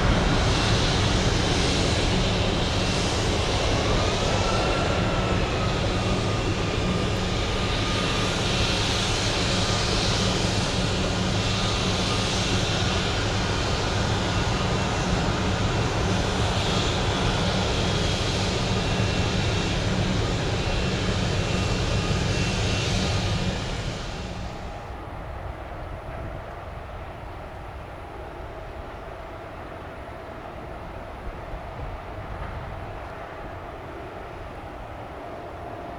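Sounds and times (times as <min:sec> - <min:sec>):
jet engines running: 0:00.0 - 0:25.9.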